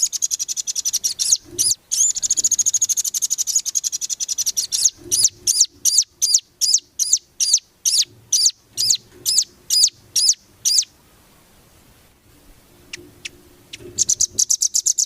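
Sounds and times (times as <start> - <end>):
songbird whistled notes: 13.7 - 15.0.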